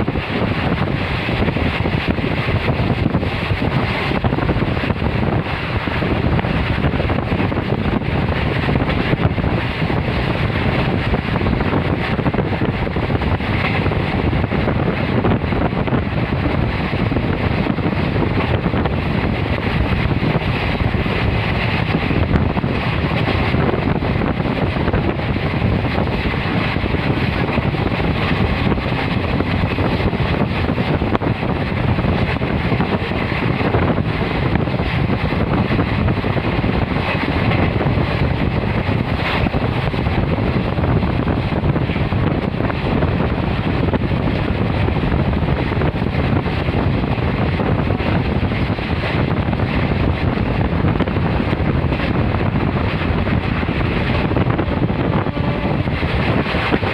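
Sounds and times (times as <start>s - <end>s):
train running noise: 0.0s - 56.9s
wind buffeting microphone: 0.0s - 56.9s.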